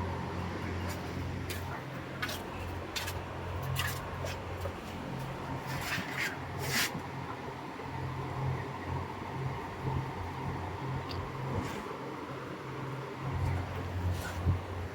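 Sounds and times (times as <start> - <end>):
fans humming: 0.0 - 14.9.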